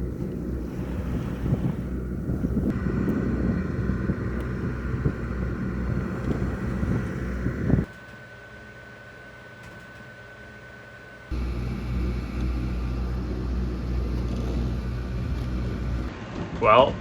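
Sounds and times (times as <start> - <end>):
wind buffeting microphone: 0.0 - 8.0, 11.3 - 16.6
low engine drone: 0.0 - 16.3.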